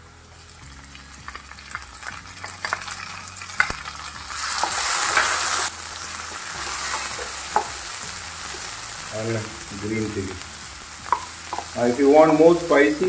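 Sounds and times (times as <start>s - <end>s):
vegetables sizzling in hot oil: 0.0s - 13.0s
spatula clicking against pan: 11.1s - 11.7s.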